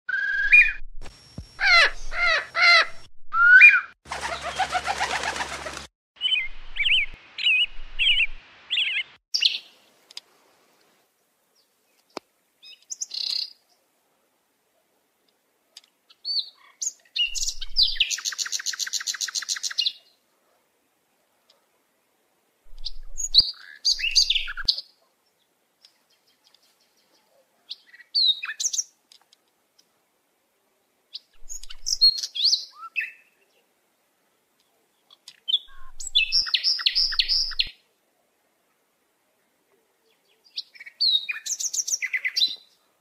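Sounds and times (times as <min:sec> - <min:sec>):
fast buzzy bird trill: 0:01.6 - 0:05.9
songbird calls and songs: 0:06.2 - 0:10.2, 0:11.6 - 0:13.9, 0:15.7 - 0:20.2, 0:22.7 - 0:29.0, 0:31.1 - 0:33.8, 0:34.5 - 0:37.8, 0:39.7 - 0:42.9.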